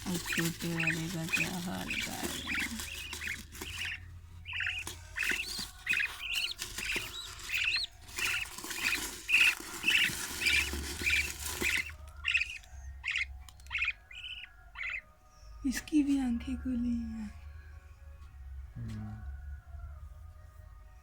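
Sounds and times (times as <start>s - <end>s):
hissing rustle: 0.0s - 14.4s
budgerigar chicks cheeping: 0.0s - 17.3s.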